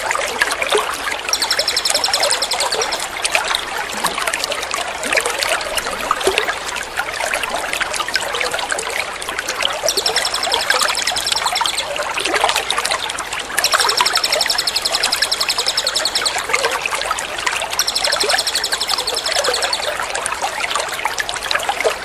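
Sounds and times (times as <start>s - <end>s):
water trickling and splashing: 0.0s - 22.0s
songbird rattling trill: 1.2s - 3.7s, 8.0s - 8.4s, 9.8s - 12.0s, 13.6s - 16.9s, 17.5s - 20.1s.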